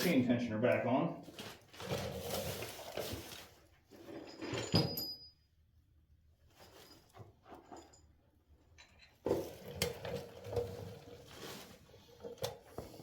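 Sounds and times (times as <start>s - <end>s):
metal tools clinking and rattling: 4.0s - 5.6s, 6.5s - 9.2s.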